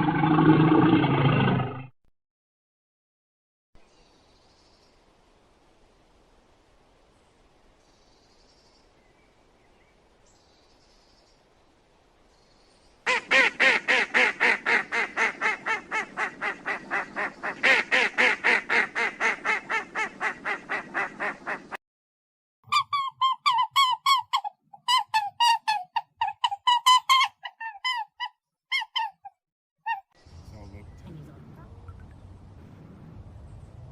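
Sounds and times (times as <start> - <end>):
bird harsh repeated calls: 13.1 - 21.8, 22.7 - 31.0.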